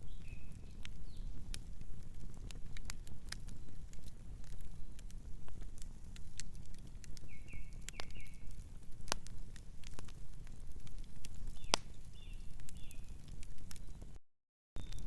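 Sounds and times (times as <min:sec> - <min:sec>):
wood fire crackling: 0:00.0 - 0:14.2, 0:14.8 - 0:15.0
distant bird chirping: 0:14.8 - 0:15.0.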